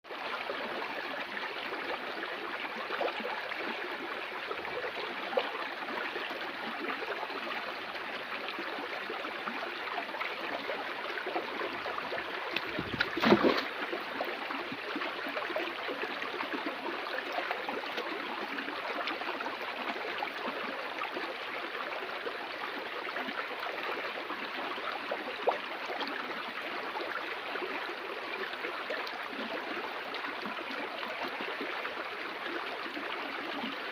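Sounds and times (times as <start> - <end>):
water flowing: 0.2 - 20.0.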